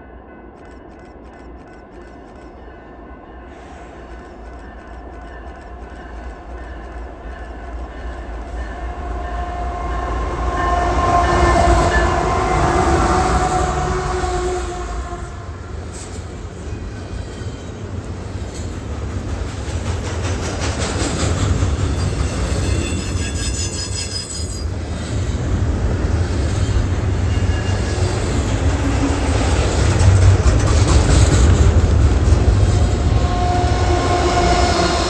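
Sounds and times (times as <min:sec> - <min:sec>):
freight train rumbling past: 0:02.4 - 0:35.0
high-pitched wheel squeal: 0:22.0 - 0:24.7.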